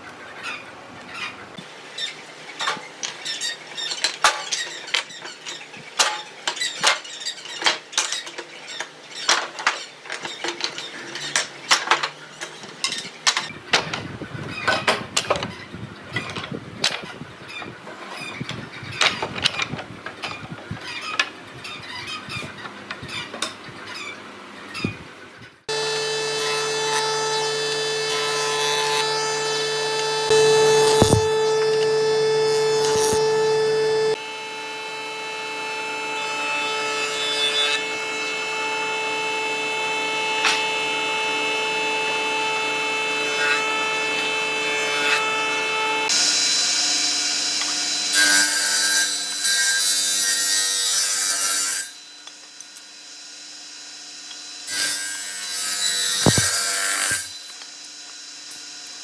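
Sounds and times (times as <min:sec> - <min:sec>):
power tool cutting wood: 0:25.7 - 0:59.0.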